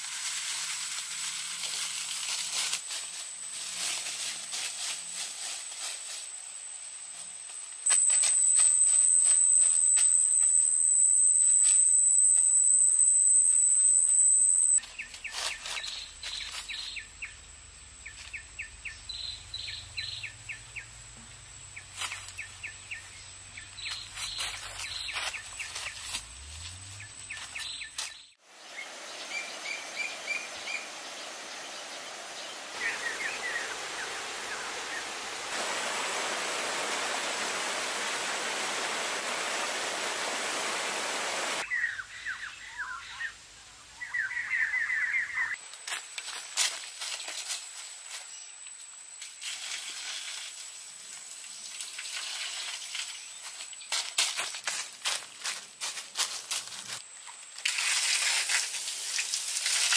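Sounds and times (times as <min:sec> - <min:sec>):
steady hiss: 0:00.0 - 0:18.2, 0:28.5 - 0:41.6, 0:45.6 - 0:59.9
steady outdoor background: 0:00.0 - 0:49.5
small birds chirping: 0:21.8 - 0:26.1, 0:26.9 - 0:35.2.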